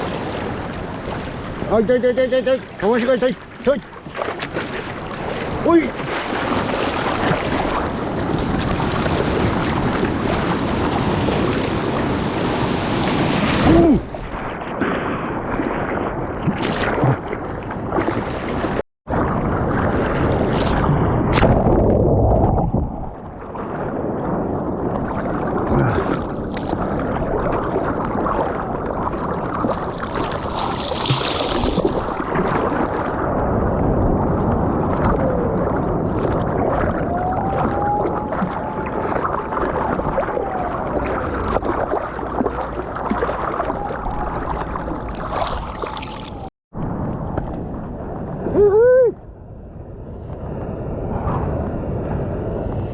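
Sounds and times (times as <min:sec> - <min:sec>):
wind noise: 0:00.0 - 0:02.8, 0:03.4 - 0:52.9
sea water splashing: 0:00.0 - 0:48.6.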